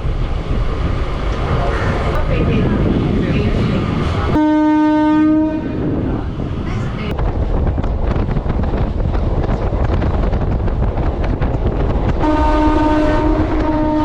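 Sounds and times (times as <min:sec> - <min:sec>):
train rumbling: 0:00.0 - 0:14.0
wind on microphone: 0:00.0 - 0:14.0
train horn: 0:04.3 - 0:05.8, 0:12.2 - 0:14.0.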